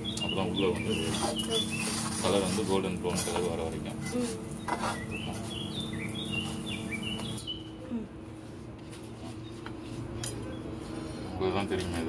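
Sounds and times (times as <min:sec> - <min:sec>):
small bird chirping: 0:00.0 - 0:02.4, 0:04.5 - 0:07.8
steady low hum: 0:00.0 - 0:12.0.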